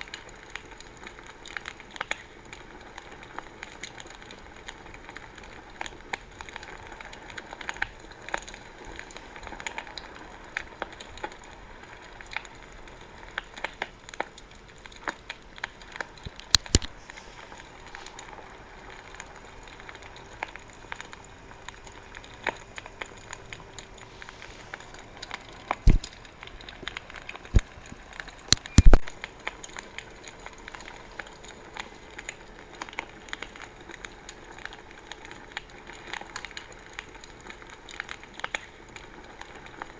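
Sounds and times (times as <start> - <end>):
loud pops from fire: 0.0 - 39.9
soft hiss of flames: 0.0 - 39.9
wood fire crackling: 0.0 - 39.9.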